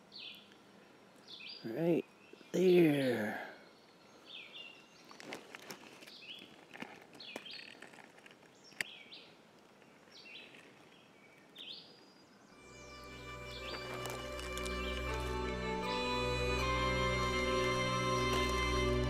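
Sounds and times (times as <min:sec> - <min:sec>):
bird chirping: 0:00.0 - 0:05.4, 0:08.5 - 0:19.0
rustling of dry pine needles: 0:05.0 - 0:08.8, 0:12.6 - 0:19.0
music: 0:12.6 - 0:19.0.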